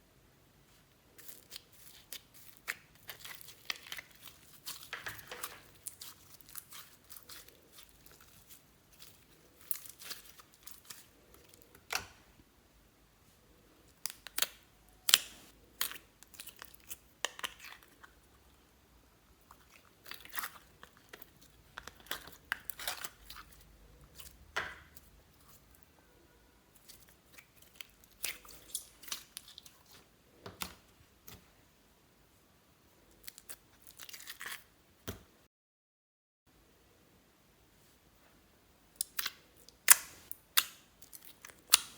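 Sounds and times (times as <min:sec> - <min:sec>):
sticky slime clicks and crackles: 0:13.9 - 0:18.2, 0:39.0 - 0:41.9.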